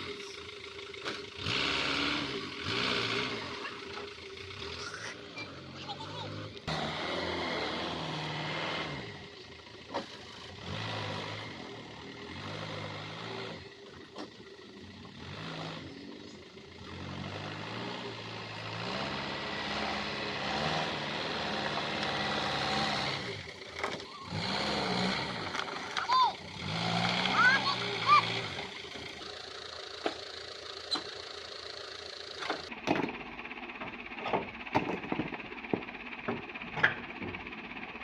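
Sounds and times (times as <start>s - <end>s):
diesel truck engine revving: 0.0s - 38.0s.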